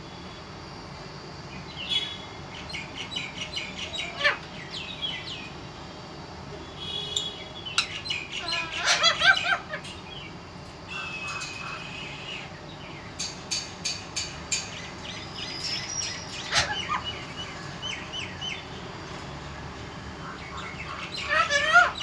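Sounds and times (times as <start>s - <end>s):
parrot chirping and calling: 3.7s - 4.5s, 7.2s - 10.2s, 14.6s - 18.2s, 20.4s - 22.0s
parrot squawk: 3.8s - 4.5s, 7.8s - 9.9s, 16.3s - 17.2s, 20.6s - 22.0s.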